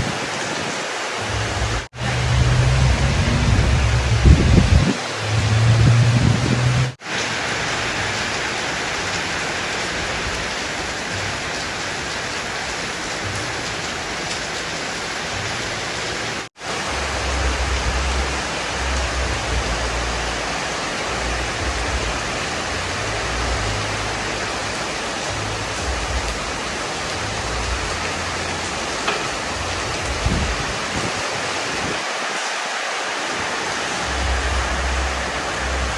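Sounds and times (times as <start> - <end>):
wind rumble on microphone: 0.0 - 7.0, 15.3 - 32.1, 33.4 - 35.9
heavy rain pouring: 0.0 - 35.9.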